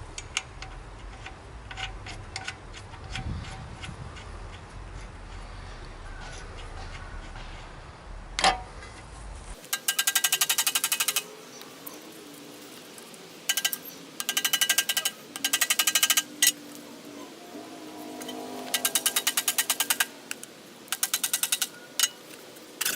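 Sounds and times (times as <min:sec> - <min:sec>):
ratchet tool clicking: 0:09.7 - 0:11.3, 0:13.5 - 0:16.6, 0:18.7 - 0:22.2.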